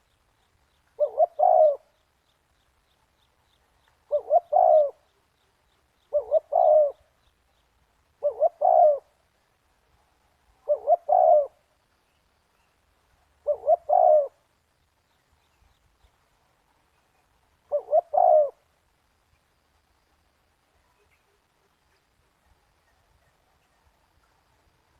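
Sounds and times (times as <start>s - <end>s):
dove cooing: 1.0s - 2.0s, 4.1s - 5.2s, 6.1s - 7.2s, 8.1s - 9.2s, 10.6s - 11.6s, 13.4s - 14.4s, 17.6s - 18.7s.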